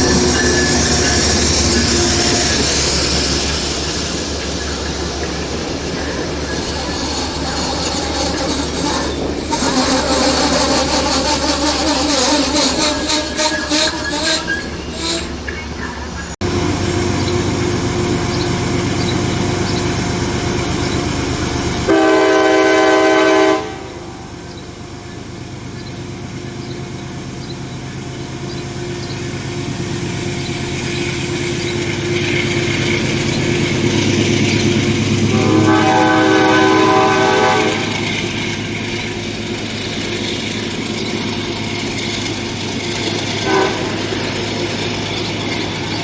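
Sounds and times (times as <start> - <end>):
train rumbling on track: 0.0 - 46.0
train horn blast: 21.9 - 24.3, 35.2 - 38.0, 43.4 - 44.2.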